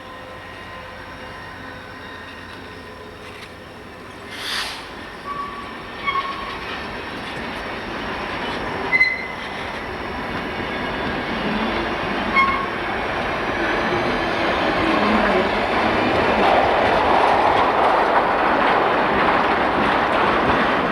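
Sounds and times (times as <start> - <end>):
train rumbling by: 0.0 - 20.9
high wheel squeals: 11.4 - 12.8.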